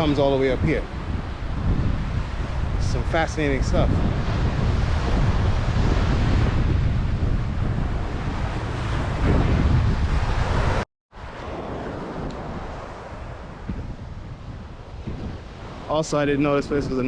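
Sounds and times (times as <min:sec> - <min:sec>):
heavy wind on microphone: 0:00.0 - 0:17.0
ocean surf: 0:00.0 - 0:17.0.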